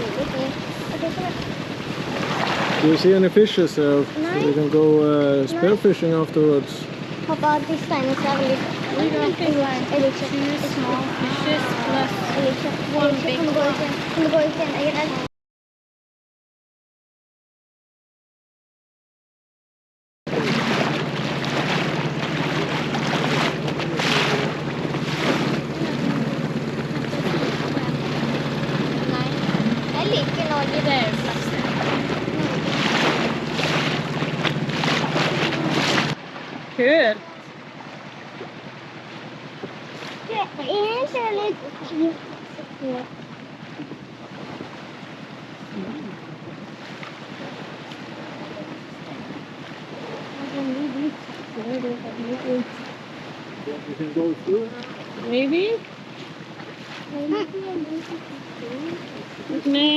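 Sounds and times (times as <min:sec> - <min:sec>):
outboard motor humming: 0:00.0 - 0:15.3, 0:20.3 - 0:59.9
rushing water: 0:00.0 - 0:15.3, 0:20.3 - 0:59.9
wind on microphone: 0:43.5 - 0:51.3.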